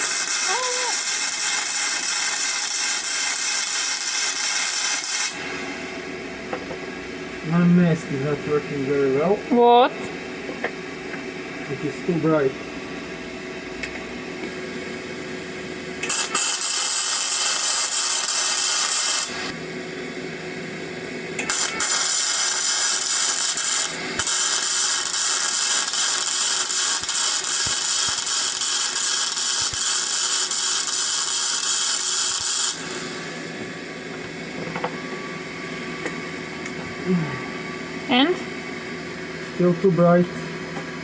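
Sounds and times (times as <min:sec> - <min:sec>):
welding arc crackling hiss: 0:00.0 - 0:05.6, 0:16.0 - 0:19.6, 0:21.4 - 0:34.3.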